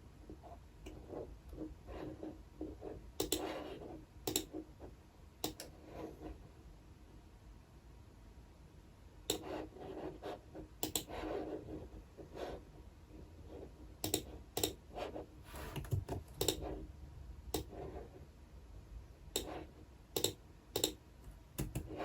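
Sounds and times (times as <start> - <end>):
typing on computer keyboard: 3.2 - 3.5, 4.2 - 4.5, 10.8 - 11.1, 14.0 - 14.8, 15.6 - 16.7, 20.2 - 21.0, 21.6 - 22.0.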